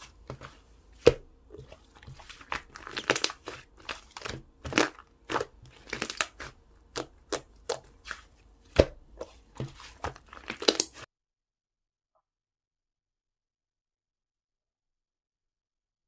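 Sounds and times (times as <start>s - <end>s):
slime popping and crackling: 1.6s - 8.2s, 10.0s - 11.1s.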